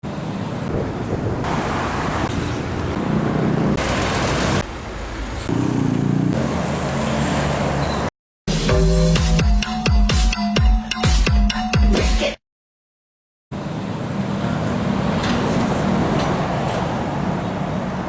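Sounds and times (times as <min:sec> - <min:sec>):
heavy road traffic: 0:00.0 - 0:08.1, 0:13.5 - 0:18.0
electronic music with heavy beat: 0:08.5 - 0:12.4.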